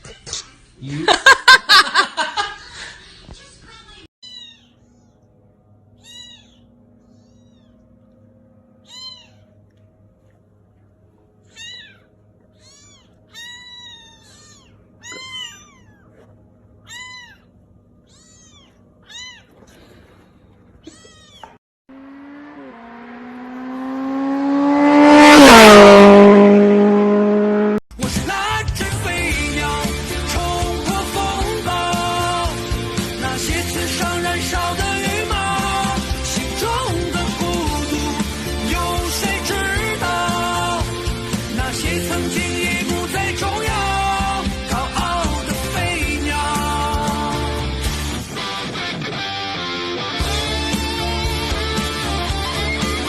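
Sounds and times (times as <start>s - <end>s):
cat meowing: 4.2s - 4.8s, 6.0s - 7.8s, 8.8s - 9.5s, 11.5s - 19.6s, 20.8s - 21.6s
loud droning sound: 21.9s - 27.8s.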